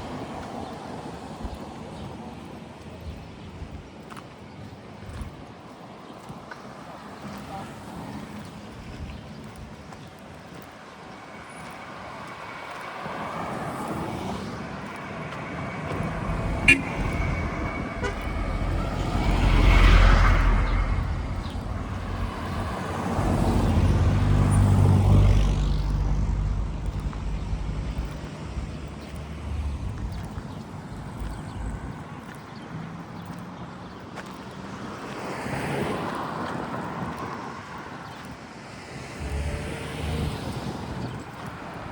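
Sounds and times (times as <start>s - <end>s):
vehicles passing: 6.6s - 41.9s
short horn tap: 15.9s - 18.9s.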